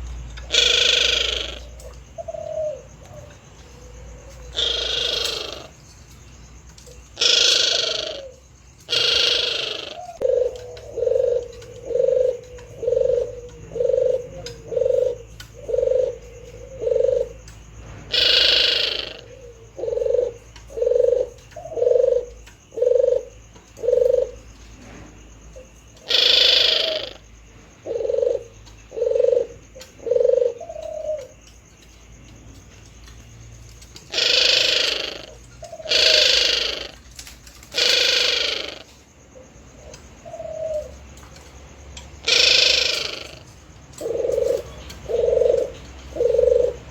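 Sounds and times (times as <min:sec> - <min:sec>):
dove cooing: 0:00.0 - 0:46.9
harsh dove call: 0:00.4 - 0:03.3, 0:04.1 - 0:05.7, 0:07.2 - 0:17.2, 0:18.1 - 0:19.5, 0:34.1 - 0:37.0, 0:37.7 - 0:38.9, 0:42.2 - 0:46.9.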